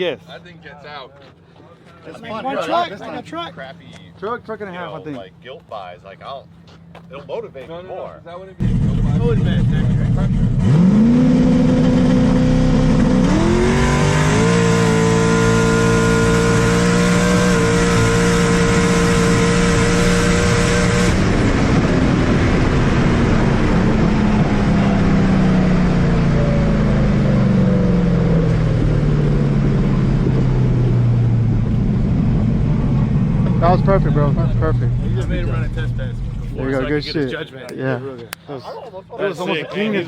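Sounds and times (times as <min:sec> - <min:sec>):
vehicle accelerating on drag strip: 0:08.6 - 0:37.2.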